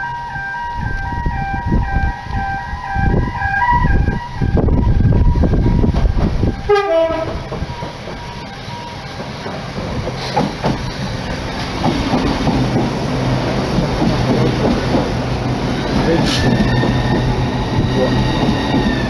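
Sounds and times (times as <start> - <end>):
train rumble and wheel clatter: 0.0 - 19.0
train horn blast: 6.6 - 7.6.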